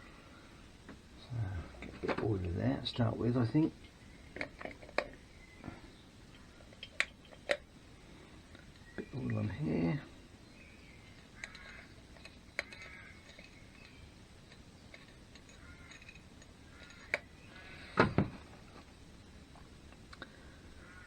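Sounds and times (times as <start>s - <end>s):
engine parts clicking and knocking: 11.4s - 17.3s.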